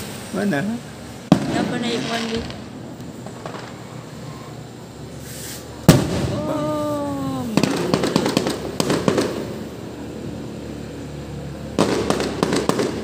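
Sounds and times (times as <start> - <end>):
fireworks crackling pops: 0.0 - 10.1, 11.7 - 13.0
firework shell bursting: 1.0 - 10.0, 11.7 - 13.0
person calling out: 6.3 - 8.4.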